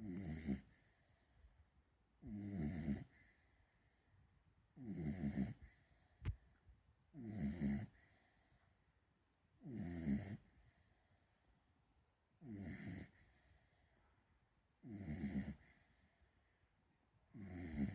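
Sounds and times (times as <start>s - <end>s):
puppy snoring: 0.0s - 1.0s, 2.2s - 3.4s, 4.8s - 6.0s, 7.1s - 8.3s, 9.6s - 10.6s, 12.4s - 13.5s, 14.8s - 16.0s, 17.3s - 17.9s.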